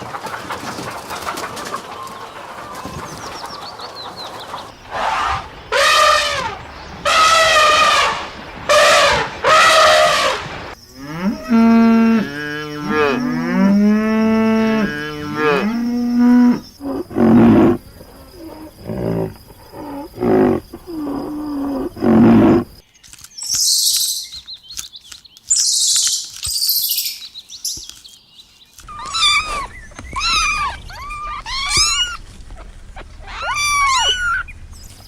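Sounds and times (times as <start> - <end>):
cattle lowing: 4.1 - 22.8, 28.8 - 35.0
short high calls: 4.9 - 10.8.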